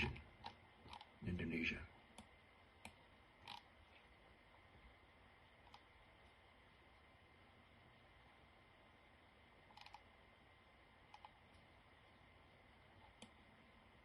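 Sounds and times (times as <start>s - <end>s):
soft clicks: 2.1s - 3.7s, 11.0s - 11.7s, 13.0s - 13.4s.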